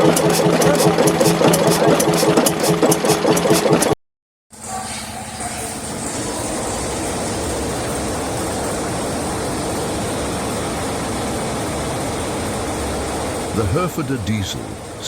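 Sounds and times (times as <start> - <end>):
diesel engine running: 0.0 - 3.9, 13.1 - 15.0.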